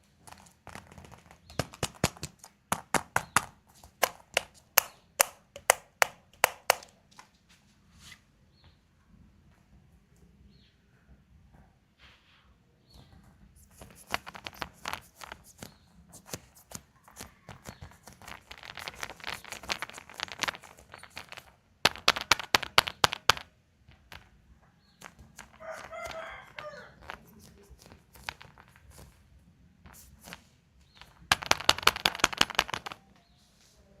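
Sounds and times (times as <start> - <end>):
plastic capsules clicking: 0.2 - 7.0, 13.6 - 29.2, 29.9 - 33.1.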